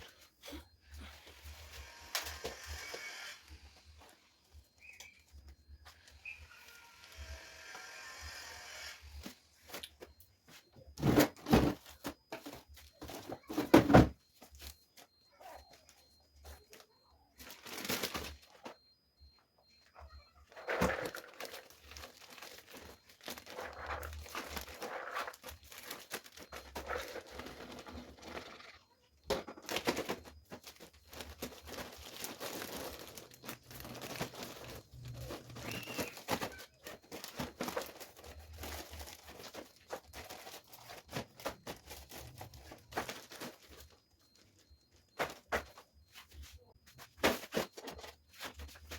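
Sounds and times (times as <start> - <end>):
plastic bags crinkling: 17.4 - 18.8, 20.5 - 28.4, 29.6 - 45.8.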